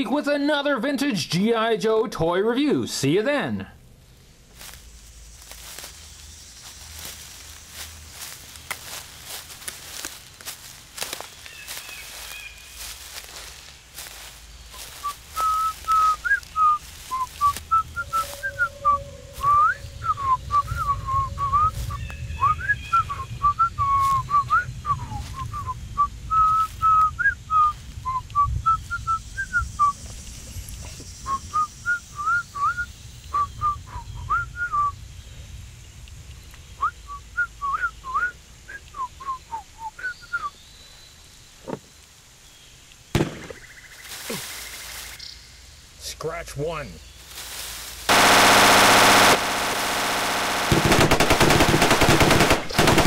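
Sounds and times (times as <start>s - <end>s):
songbird singing: 4.1s - 47.6s
sharp crack: 43.2s - 43.7s, 48.0s - 53.0s.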